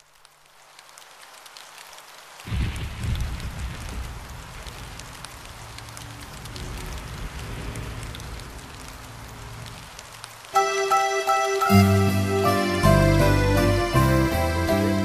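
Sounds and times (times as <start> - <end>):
rain hissing: 0.0 - 15.0
low rumble: 2.5 - 10.2.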